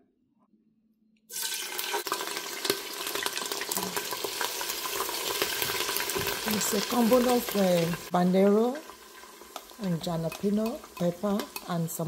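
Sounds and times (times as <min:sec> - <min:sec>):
paste sizzling in hot oil: 0:01.3 - 0:12.0
spoon stirring in pot: 0:09.5 - 0:12.0.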